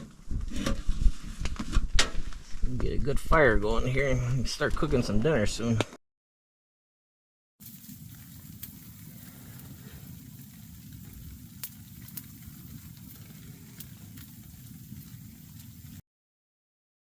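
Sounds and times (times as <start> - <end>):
fire crackles and pops: 7.6 - 16.0
wood fire rumbling in stove: 7.6 - 16.0.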